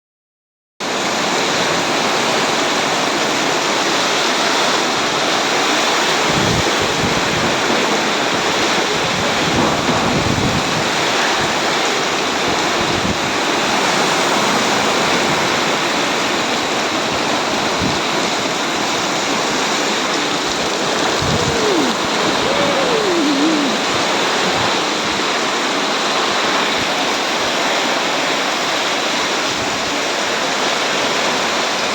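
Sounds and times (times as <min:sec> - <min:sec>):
heavy rain pouring: 0:17.8 - 0:24.9.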